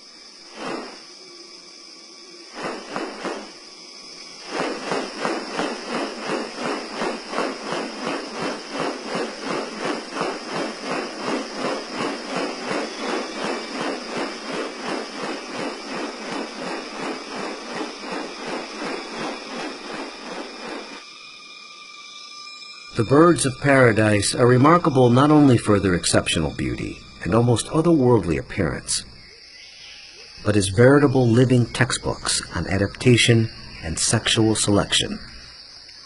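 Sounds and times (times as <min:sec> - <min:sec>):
high insect hiss: 0:00.0 - 0:36.0
rapid pulsing animal call: 0:00.6 - 0:21.1.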